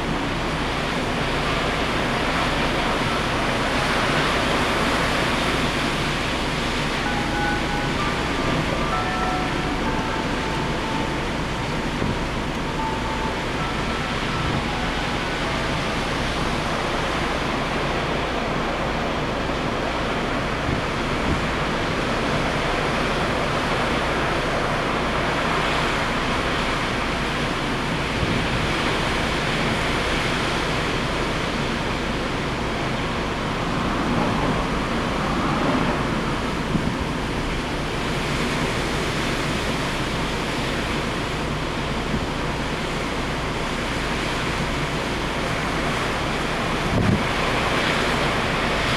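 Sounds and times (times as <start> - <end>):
rough sea surf: 0.0 - 48.9
strong wind: 0.0 - 48.9
wind buffeting microphone: 32.6 - 48.9.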